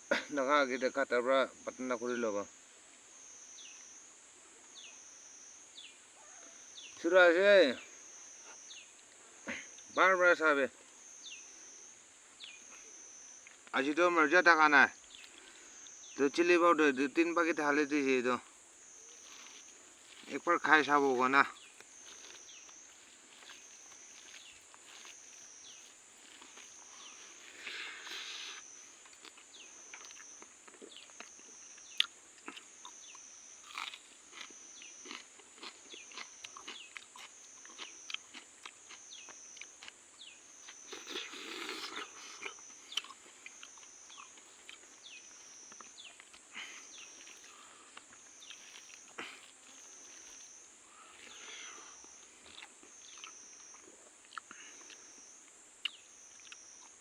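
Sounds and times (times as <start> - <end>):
insect chorus pulsing: 0.0 - 57.0
chewing and mouth smacks: 28.0 - 40.0, 40.7 - 45.0, 47.2 - 50.5, 52.4 - 55.0, 55.8 - 57.0.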